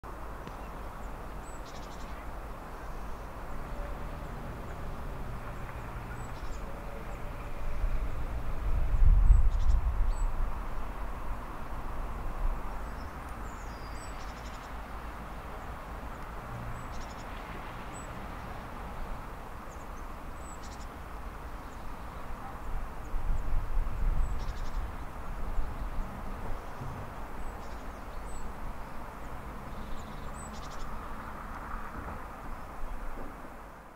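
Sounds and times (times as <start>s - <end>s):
small birds chirping: 0.4s - 3.4s, 9.2s - 10.4s, 12.7s - 18.6s, 19.6s - 31.4s.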